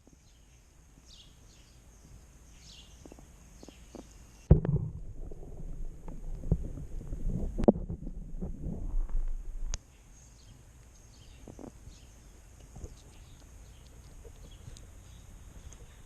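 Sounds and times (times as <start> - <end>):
underwater knocks: 4.5 - 9.7
muffled underwater rumbling: 4.5 - 9.8.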